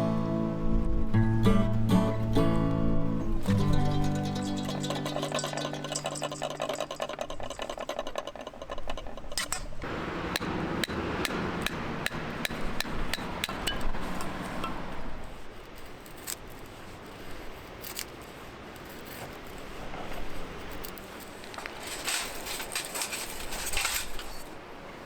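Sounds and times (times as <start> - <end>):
background music: 0.0 - 5.9
utensil taps and clinks: 3.7 - 13.9.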